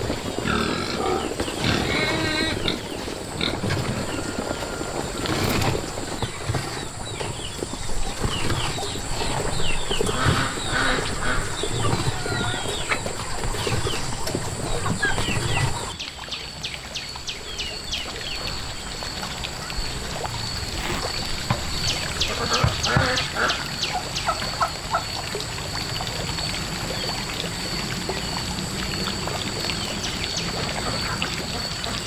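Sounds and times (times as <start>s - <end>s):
chicks peeping: 0.4s - 15.9s.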